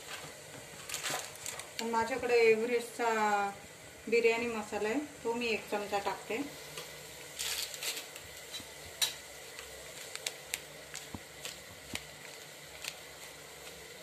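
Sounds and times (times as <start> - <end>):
onion frying in oil: 0.0 - 14.0.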